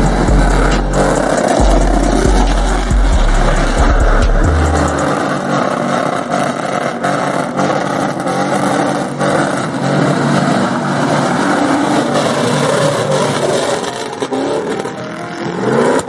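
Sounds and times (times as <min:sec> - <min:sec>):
steady wash of noise: 0:00.0 - 0:05.5
car engine revving: 0:00.0 - 0:16.0.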